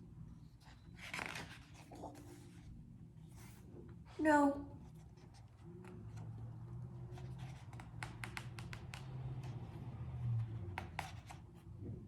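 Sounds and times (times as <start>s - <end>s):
page being turned: 0.9s - 2.4s.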